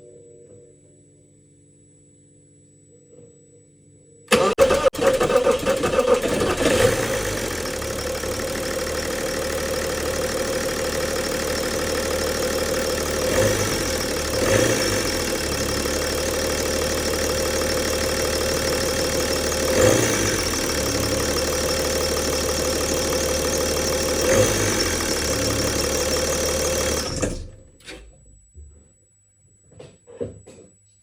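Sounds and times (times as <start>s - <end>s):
diesel engine idling: 4.3s - 27.6s.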